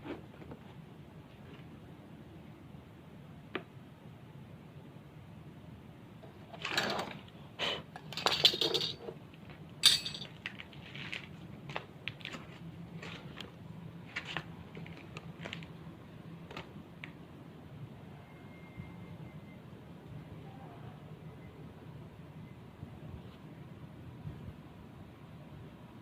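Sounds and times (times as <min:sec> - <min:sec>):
sharp clink: 0:09.8 - 0:10.3.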